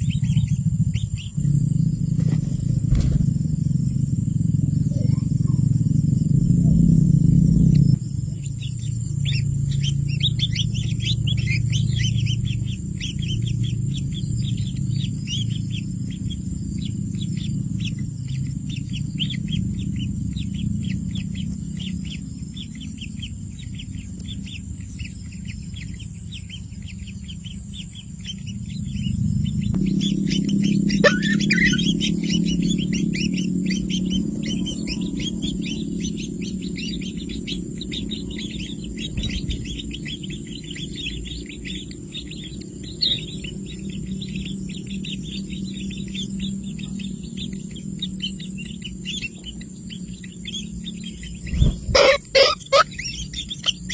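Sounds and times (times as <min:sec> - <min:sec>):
small birds chirping: 0:00.0 - 0:53.9
steady low hum: 0:00.0 - 0:53.9
sliding bird call: 0:30.9 - 0:32.1, 0:51.5 - 0:53.9.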